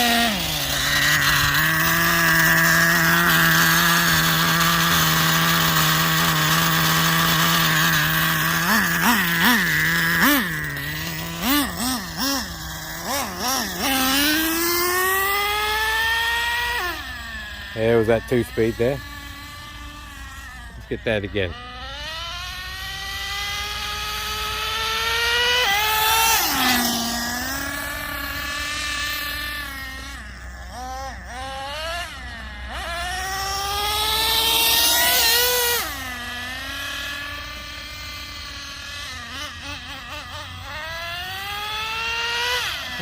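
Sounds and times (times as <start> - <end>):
small engine whining: 0.0 - 43.0.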